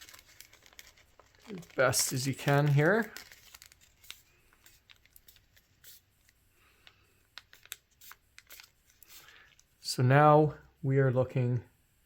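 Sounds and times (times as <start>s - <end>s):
paper being folded and creased: 0.0s - 6.4s, 7.4s - 9.7s.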